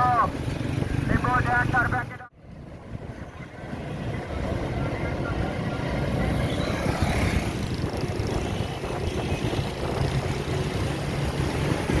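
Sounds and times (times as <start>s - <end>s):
gusting wind buffeting microphone: 6.3s - 12.0s.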